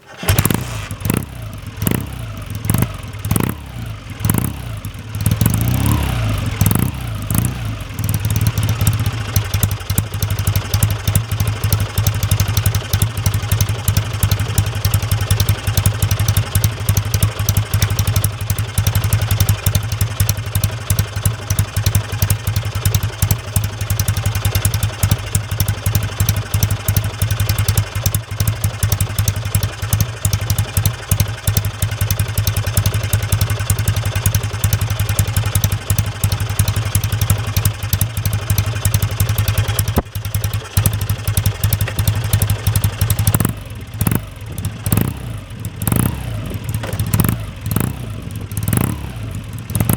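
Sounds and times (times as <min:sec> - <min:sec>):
motorcycle engine idling: 0:00.0 - 0:49.9
motorcycle throttle blip: 0:39.6 - 0:40.7, 0:41.6 - 0:49.9.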